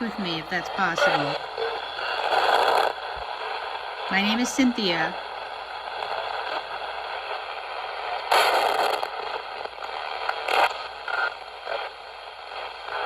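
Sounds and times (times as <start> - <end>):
crackling noise bursts: 0.0 - 13.0
radio static hiss: 0.0 - 13.0.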